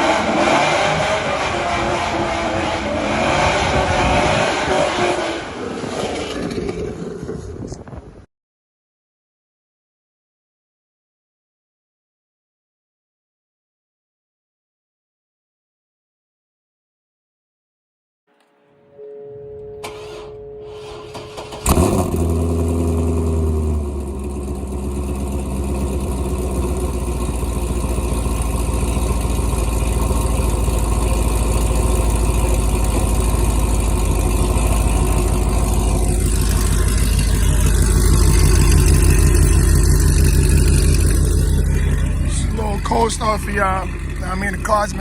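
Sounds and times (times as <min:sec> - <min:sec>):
engine cranking and starting: 0:19.8 - 0:25.2, 0:27.6 - 0:45.0
car engine high idle: 0:19.8 - 0:45.0
exhaust bang: 0:19.8 - 0:45.0.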